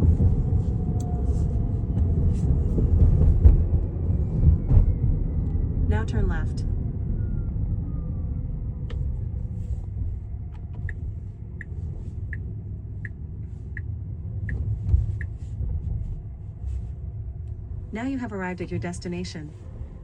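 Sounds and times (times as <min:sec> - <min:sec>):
road and tyre rumble: 0:00.0 - 0:20.0
turn signal ticking: 0:09.9 - 0:15.7.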